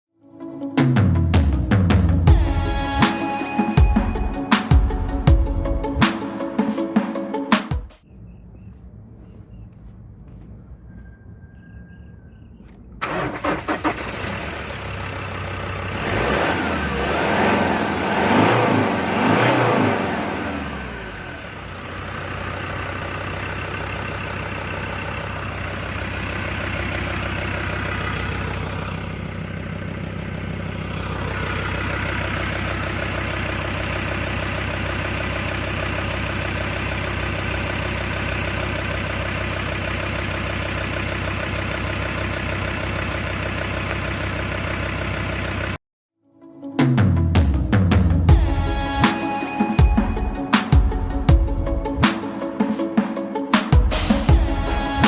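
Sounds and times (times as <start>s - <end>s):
diesel engine starting and revving: 8.1s - 45.8s.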